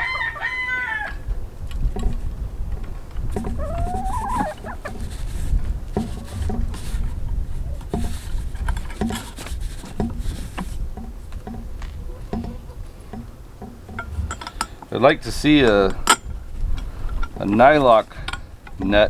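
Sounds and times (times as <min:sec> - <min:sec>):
rooster crowing: 0:00.0 - 0:01.3, 0:03.6 - 0:05.0
chickens clucking: 0:00.0 - 0:18.0.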